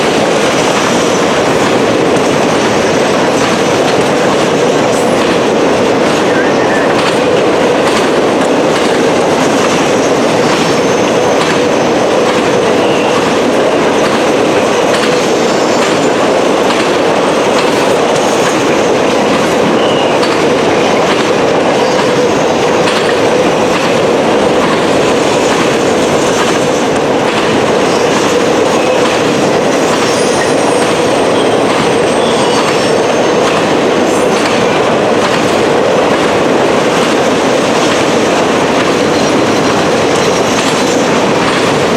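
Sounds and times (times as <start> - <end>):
freight train wheels rumbling: 0.0 - 41.9
high wheel squeal: 30.0 - 33.4.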